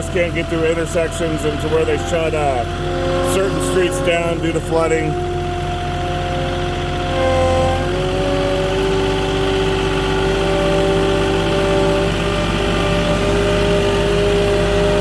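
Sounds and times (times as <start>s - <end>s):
forklift diesel engine running: 0.0s - 15.0s.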